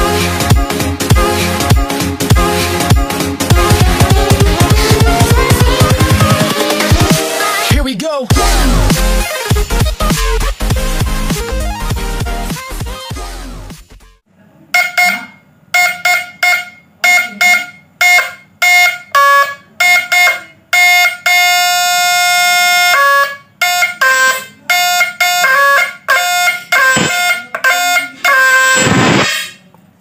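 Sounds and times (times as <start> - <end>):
inverter buzzing in bursts: 26.2 - 29.3.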